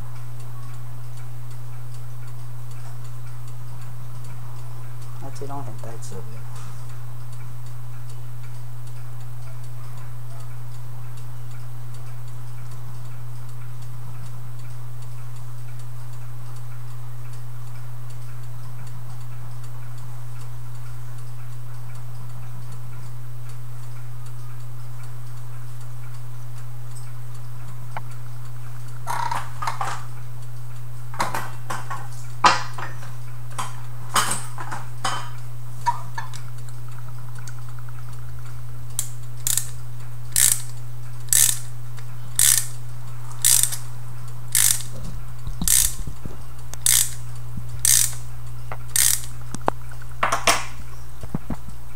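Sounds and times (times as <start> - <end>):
mechanical clock ticking: 0.0 - 49.8
sharp metallic clicks and knocks: 39.0 - 39.8, 40.4 - 41.7, 42.4 - 42.8, 43.4 - 43.9, 44.6 - 47.2, 47.8 - 50.8.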